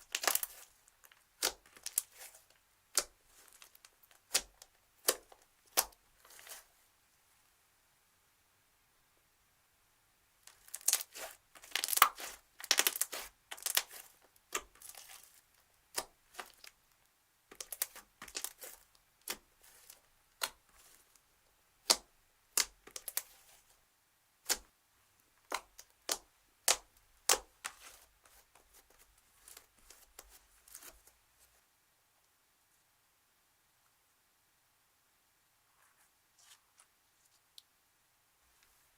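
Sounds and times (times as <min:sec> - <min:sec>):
slime crackling and popping: 0:00.0 - 0:02.3, 0:10.4 - 0:16.8, 0:17.5 - 0:21.0, 0:21.8 - 0:23.5.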